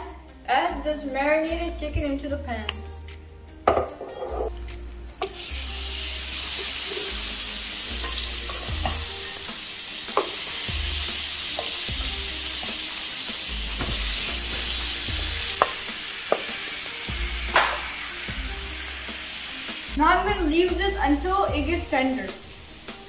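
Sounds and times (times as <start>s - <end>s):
chicken sizzling in hot oil: 5.2s - 20.1s
spatula knocking against pan: 15.6s - 16.6s.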